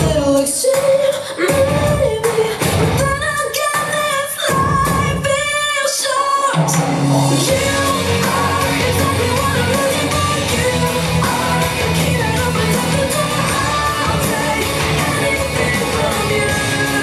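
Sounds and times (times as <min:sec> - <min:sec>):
pop song singing: 0:00.0 - 0:17.0
backing music with bass line: 0:06.6 - 0:17.0.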